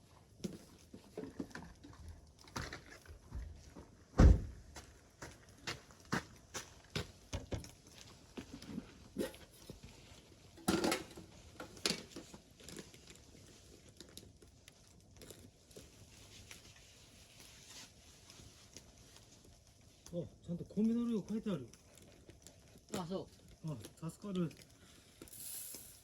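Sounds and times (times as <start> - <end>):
hard thump: 4.2 - 4.5.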